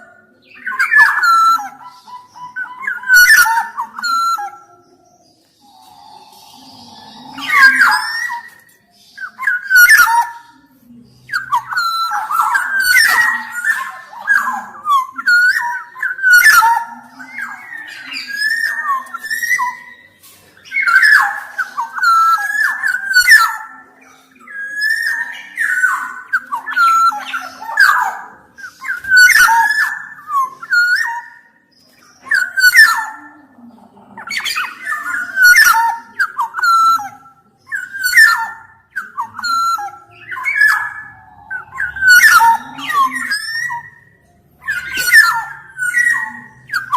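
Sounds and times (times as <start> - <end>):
bird singing fluty whistles: 11.3 - 33.2, 34.3 - 46.9.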